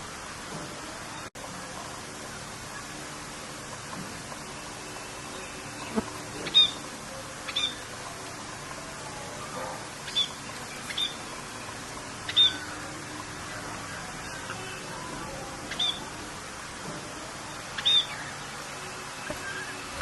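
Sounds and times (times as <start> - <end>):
steady rain: 0.0 - 20.0
bird chirping: 4.4 - 7.9, 9.4 - 12.9, 15.6 - 16.1, 17.8 - 18.5.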